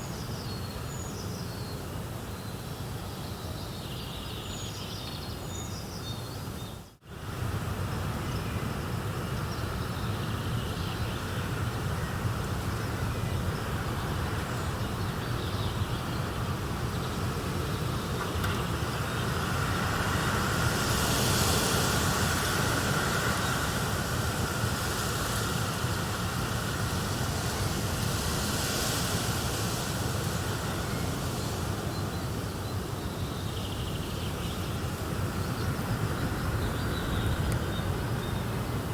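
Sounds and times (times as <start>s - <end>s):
even hiss: 8.8s - 38.9s.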